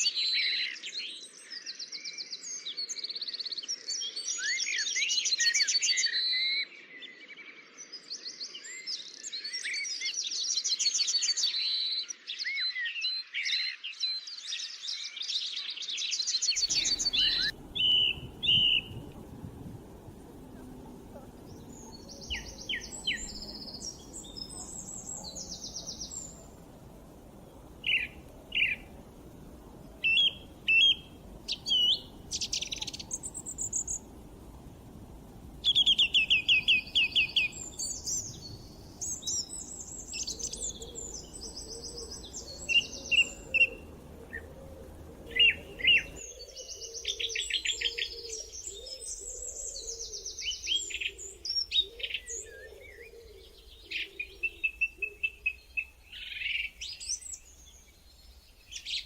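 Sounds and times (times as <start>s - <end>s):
songbirds singing and chirping: 0.0s - 59.0s
faint low hiss: 16.4s - 59.0s.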